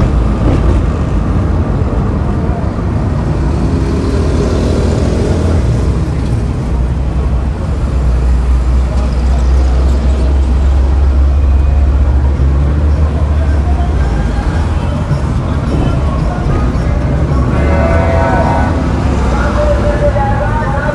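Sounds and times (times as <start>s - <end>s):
road traffic rumble: 0.0s - 20.9s.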